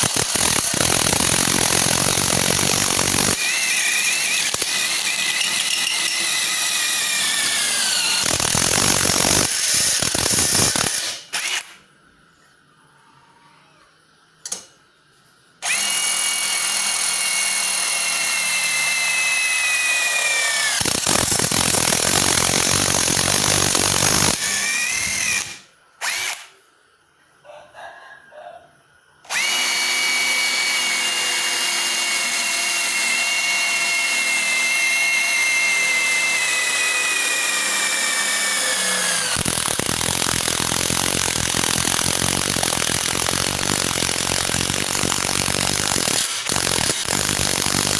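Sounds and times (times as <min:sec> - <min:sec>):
impact driver whining and hammering: 0:00.0 - 0:11.6.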